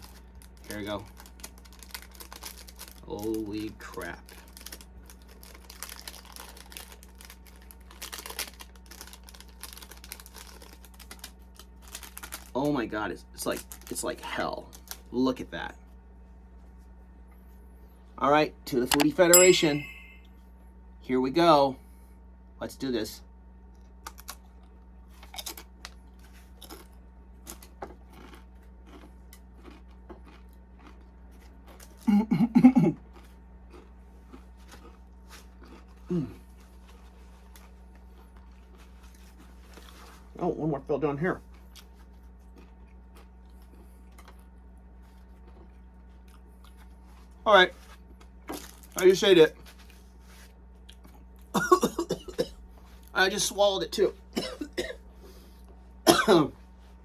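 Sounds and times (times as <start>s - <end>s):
box and foil packet handled: 0.0s - 12.6s
person crunching chip: 1.2s - 3.2s, 4.2s - 12.5s, 25.2s - 32.1s, 33.0s - 40.2s, 41.4s - 49.0s.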